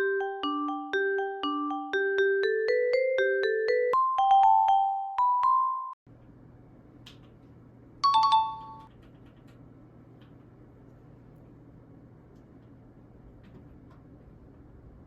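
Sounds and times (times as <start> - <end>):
mallet percussion music: 0.0 - 6.0.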